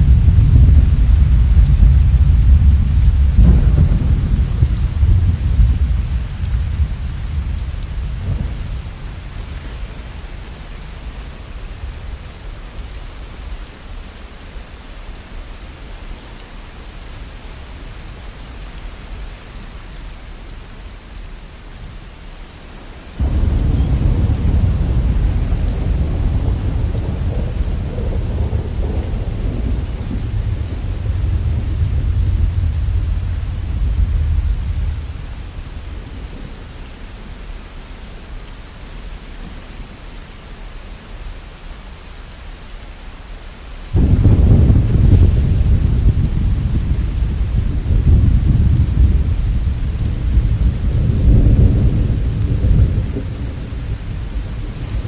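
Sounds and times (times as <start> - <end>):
thunder rumbling: 0.0 - 12.6, 23.2 - 37.0, 43.9 - 55.0
heavy rain falling: 0.0 - 55.0.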